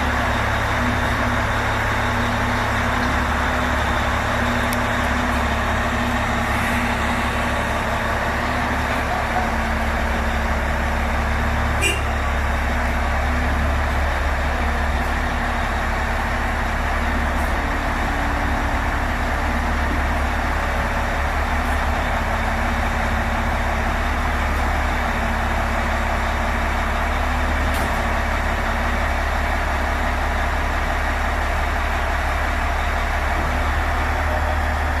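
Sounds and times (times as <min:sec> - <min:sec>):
diesel engine rumbling: 0:00.0 - 0:35.0.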